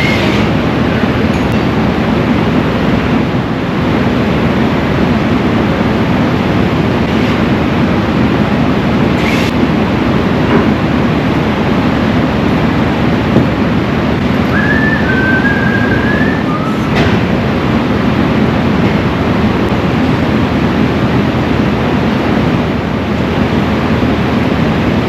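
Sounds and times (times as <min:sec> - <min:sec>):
vehicle engine rumbling: 0:00.0 - 0:25.0
high squeal: 0:14.5 - 0:17.0.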